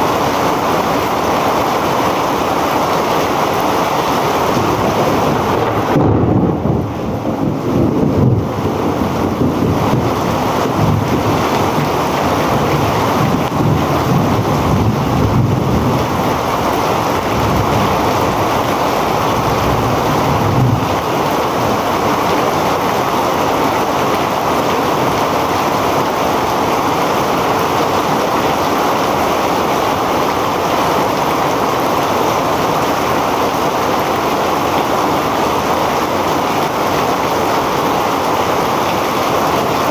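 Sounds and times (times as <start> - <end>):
heavy rain pouring: 0.0 - 39.9
low rumbling: 4.2 - 22.9.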